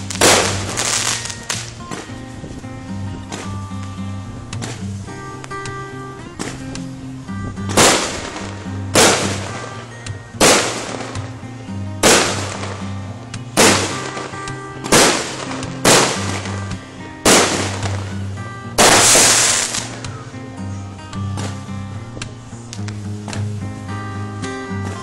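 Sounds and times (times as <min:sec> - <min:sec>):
fireworks bangs: 0:00.0 - 0:02.2, 0:07.7 - 0:11.4, 0:12.0 - 0:20.1
background music with held notes: 0:00.0 - 0:25.0.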